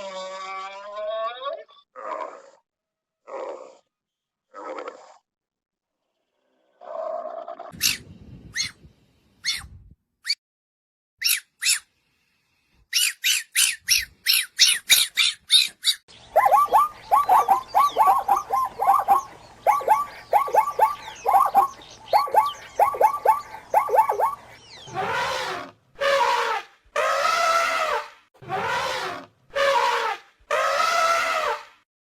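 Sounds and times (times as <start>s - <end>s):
short high-pitched animal calls: 12.9s - 26.3s
rapid chattering animal calls: 13.0s - 25.6s
hoarse animal calls: 16.4s - 31.6s.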